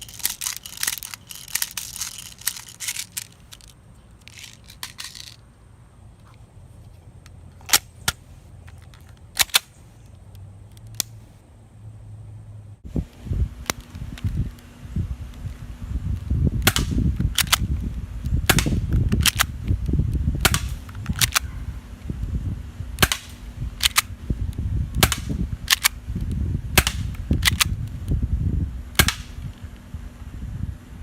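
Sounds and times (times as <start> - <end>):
low rumbling noise: 0.0 - 31.0
airsoft gun shots: 16.6 - 17.6, 18.4 - 19.4, 20.4 - 21.5, 23.0 - 24.1, 25.0 - 25.9, 26.8 - 27.7, 29.0 - 29.4.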